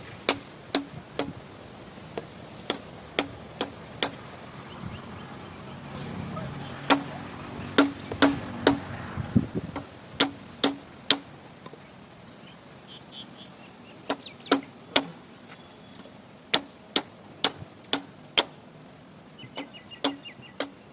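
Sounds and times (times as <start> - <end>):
hand tool striking hard surface: 0.3 - 1.4, 6.9 - 7.1, 7.8 - 8.8.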